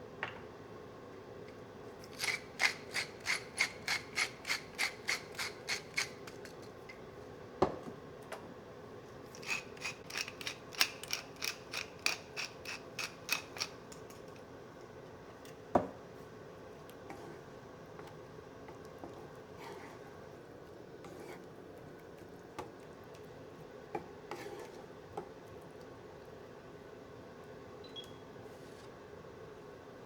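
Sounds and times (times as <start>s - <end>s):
kitchen utensil rasping strokes: 2.1s - 6.5s, 19.5s - 20.2s, 21.0s - 21.5s, 24.3s - 24.9s.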